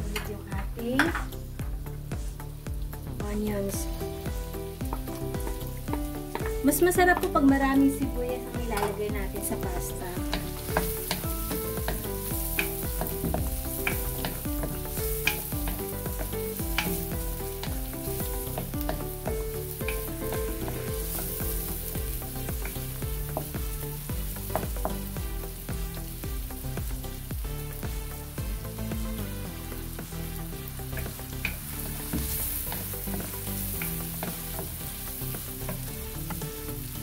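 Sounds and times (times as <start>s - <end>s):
background music: 0.0s - 37.0s
onions sizzling in a wok: 0.0s - 37.0s
wooden spoon knocking on pan: 4.2s - 25.8s, 31.0s - 34.8s.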